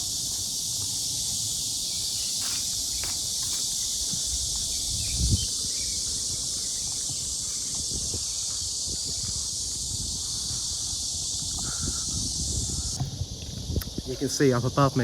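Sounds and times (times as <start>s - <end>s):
insects buzzing: 0.0s - 15.0s
footsteps thudding: 2.3s - 4.9s.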